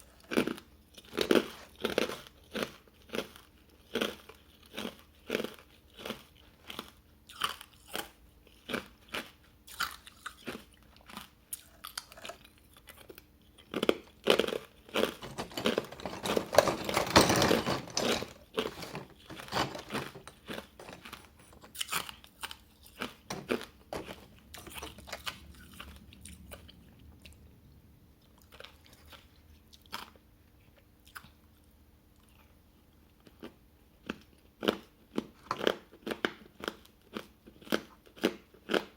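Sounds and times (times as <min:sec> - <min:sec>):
ice being chewed crunching: 0:00.0 - 0:26.4.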